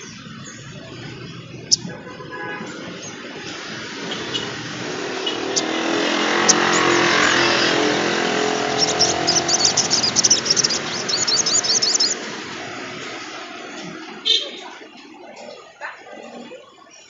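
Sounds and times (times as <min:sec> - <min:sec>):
motor vehicle passing: 0:00.0 - 0:15.0
bird singing high thin chirps: 0:05.2 - 0:12.2.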